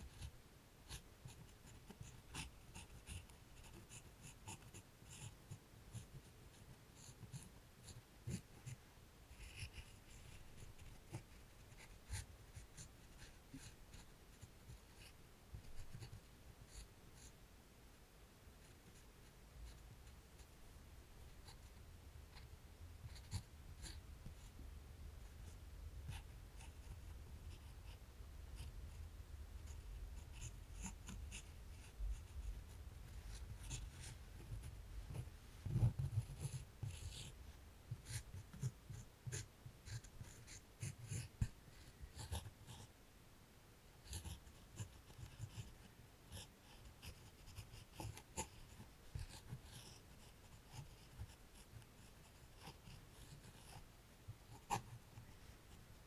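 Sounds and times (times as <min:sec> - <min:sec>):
drawing tool scratching paper: 0:00.0 - 0:00.3, 0:00.9 - 0:17.3, 0:22.3 - 0:24.5, 0:29.7 - 0:42.9, 0:44.0 - 0:53.8, 0:54.5 - 0:55.4.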